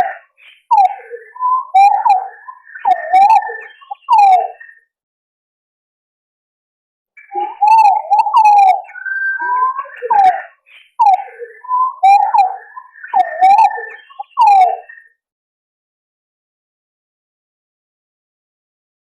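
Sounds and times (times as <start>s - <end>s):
pigeons whistling calls: 0.0s - 4.6s, 7.2s - 15.1s.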